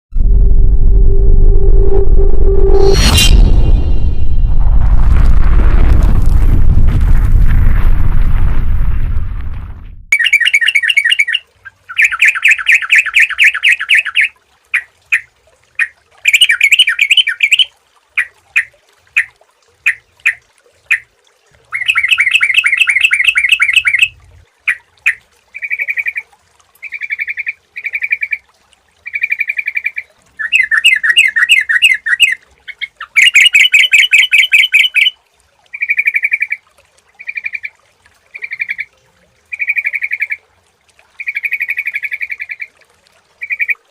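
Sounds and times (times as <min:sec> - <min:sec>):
bulbul singing: 0:10.1 - 0:14.3, 0:21.8 - 0:26.0, 0:29.2 - 0:35.2.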